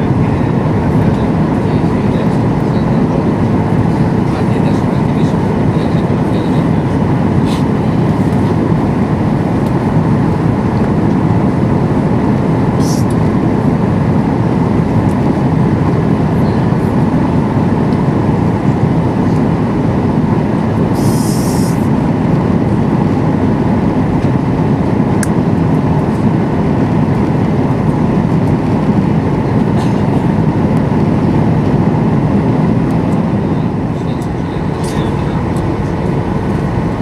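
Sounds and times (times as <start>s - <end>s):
jet engines and airflow rumble: 0.0s - 37.0s
high hiss: 20.9s - 21.9s.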